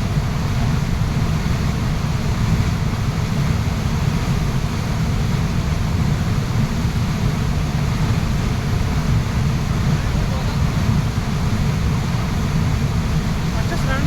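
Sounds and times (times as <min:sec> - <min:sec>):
waterfall rushing: 0:05.2 - 0:14.0.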